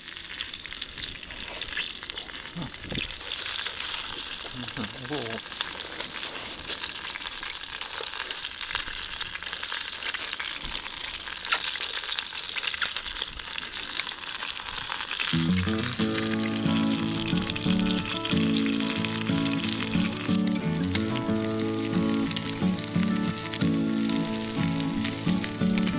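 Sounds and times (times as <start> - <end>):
food sizzling in frying: 0.0 - 25.9
background music: 15.4 - 25.9.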